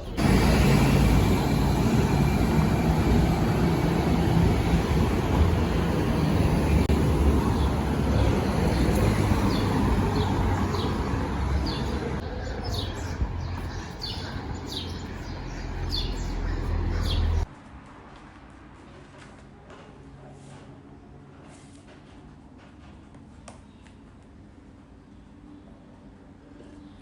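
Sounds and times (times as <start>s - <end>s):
birds chirping: 0.0s - 17.5s
low traffic rumble: 0.0s - 18.8s.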